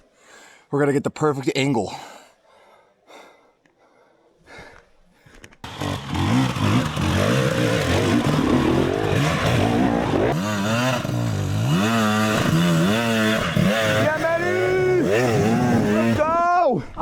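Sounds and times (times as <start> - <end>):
dirt bike engine revving: 5.6 - 16.4.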